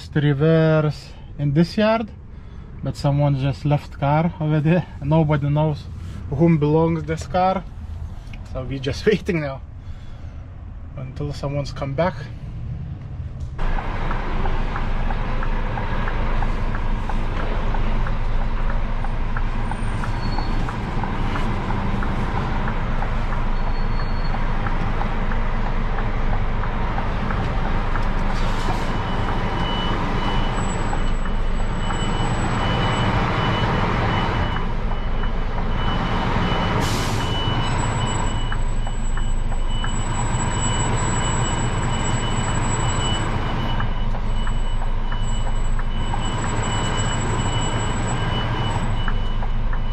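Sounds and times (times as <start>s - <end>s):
diesel truck engine idling: 13.3s - 49.9s.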